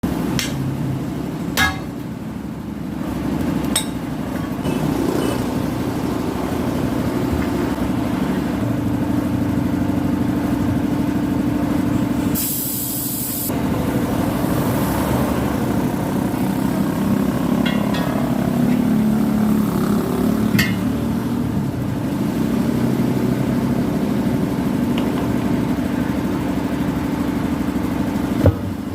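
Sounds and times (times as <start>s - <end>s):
engine running: 0.0s - 28.9s
hissing air burst: 12.3s - 13.5s.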